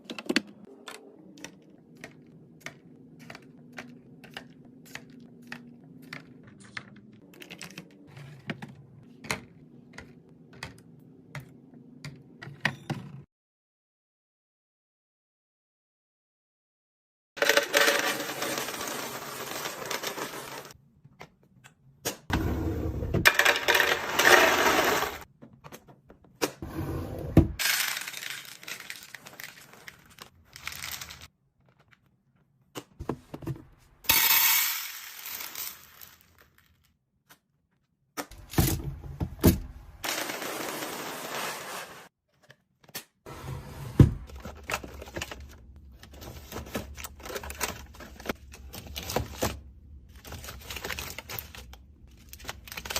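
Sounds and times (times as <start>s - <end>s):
packages rustling: 27.7s - 31.8s, 40.0s - 42.1s, 44.2s - 52.9s.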